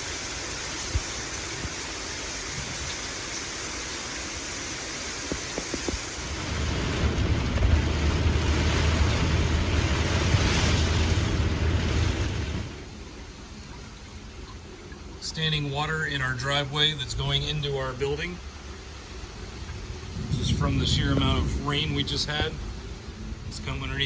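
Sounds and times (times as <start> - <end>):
hiss of heavy rain: 0.0 - 24.0
low rumble: 5.4 - 24.0.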